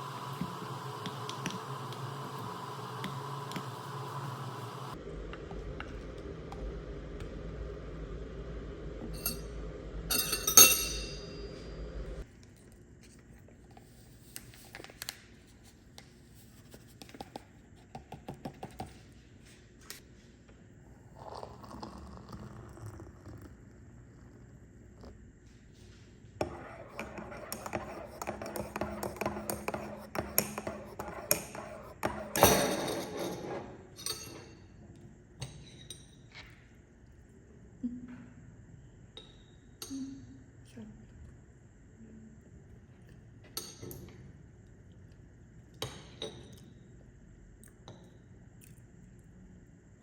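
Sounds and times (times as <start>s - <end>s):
dishes and utensils clinking: 9.2s - 11.6s, 32.3s - 34.6s
utensils and dishware clicking: 10.1s - 11.4s.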